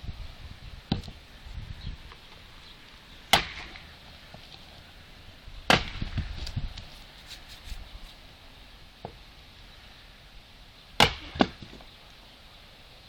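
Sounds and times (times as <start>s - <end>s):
axe chopping firewood: 3.3s - 4.1s, 5.7s - 6.9s, 11.0s - 11.9s.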